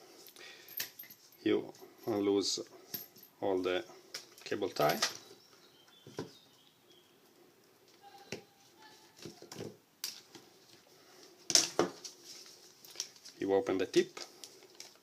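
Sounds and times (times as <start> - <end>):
packaging rustles: 11.5 - 15.0.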